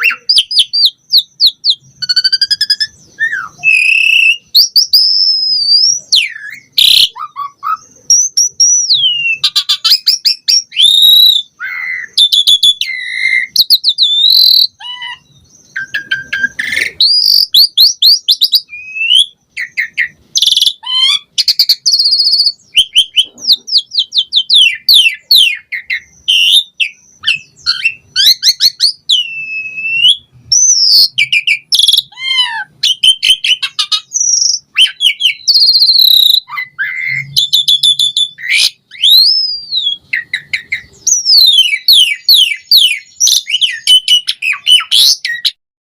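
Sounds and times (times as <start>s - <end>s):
starling singing: 0.0s - 45.6s.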